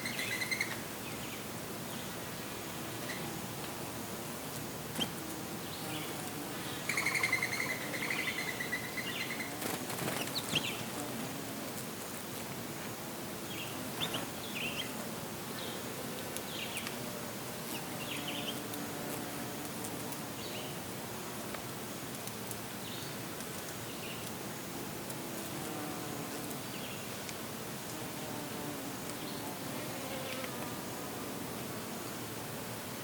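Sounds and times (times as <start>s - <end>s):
steady background hiss: 0.0s - 33.0s
rustle of wings or leaves: 8.9s - 20.9s
small birds chirping: 13.5s - 15.0s.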